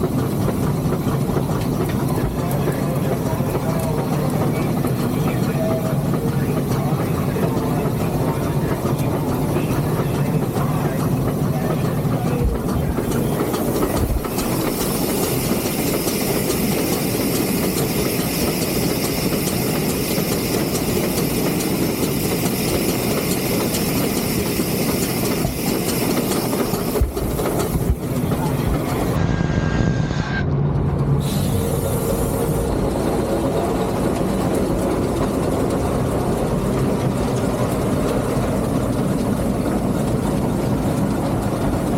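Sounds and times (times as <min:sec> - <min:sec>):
steam locomotive rumble: 0:00.0 - 0:41.9
bright hiss of steam: 0:31.2 - 0:32.7.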